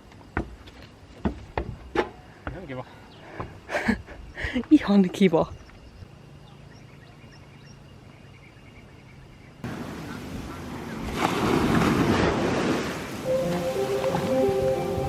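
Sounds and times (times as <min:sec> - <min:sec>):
ocean surf rushing: 0:11.7 - 0:15.0.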